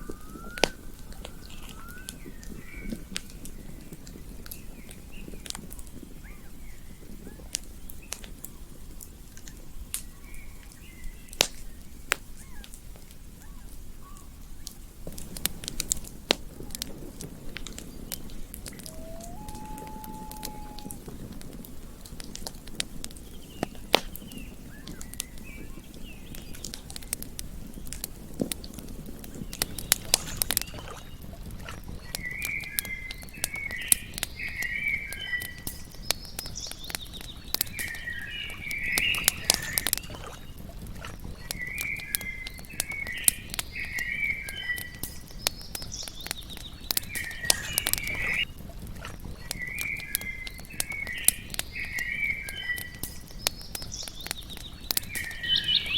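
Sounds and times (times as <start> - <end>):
campfire crackling and popping: 0.0 - 55.9
short chirping animal call: 18.6 - 21.1.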